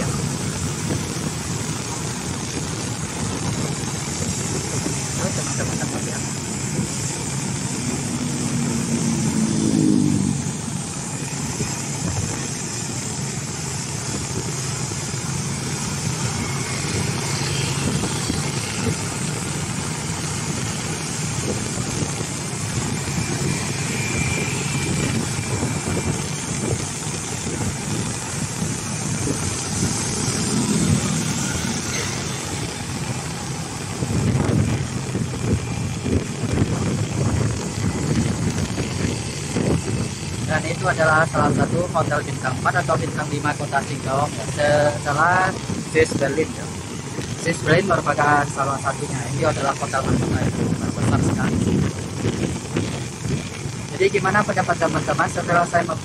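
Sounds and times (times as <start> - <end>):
engine revving: 0.0 - 51.9
traffic engine and road noise: 0.0 - 56.0.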